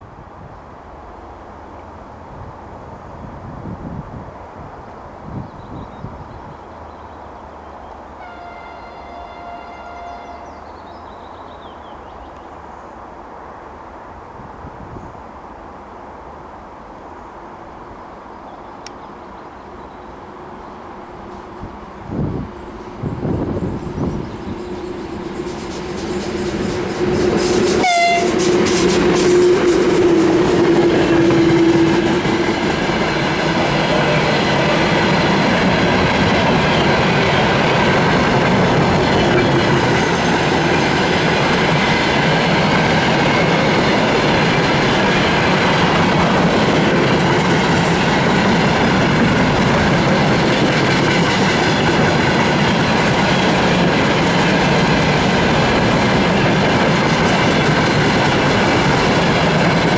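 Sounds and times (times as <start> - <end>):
freight train wagons rumbling past: 6.0 - 59.9
electric locomotive horn: 8.2 - 10.8, 23.3 - 35.0.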